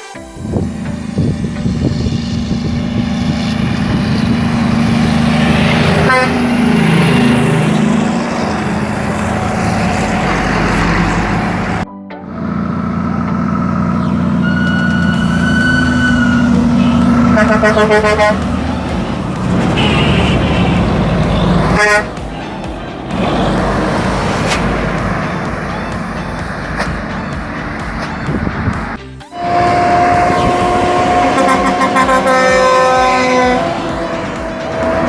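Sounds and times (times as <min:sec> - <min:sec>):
truck diesel engine running: 0:00.0 - 0:35.0.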